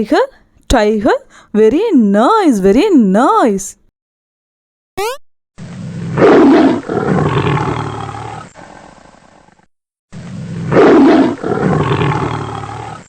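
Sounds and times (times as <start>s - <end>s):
tiger roaring: 5.6s - 9.6s, 10.2s - 13.0s.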